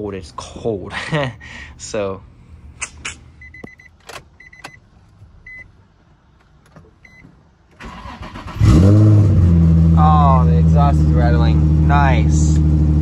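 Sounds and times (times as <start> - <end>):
car warning chime beeping: 3.4 - 5.7, 7.0 - 7.3
car starter cranking: 6.5 - 9.2
car engine revving and idling: 8.1 - 13.0.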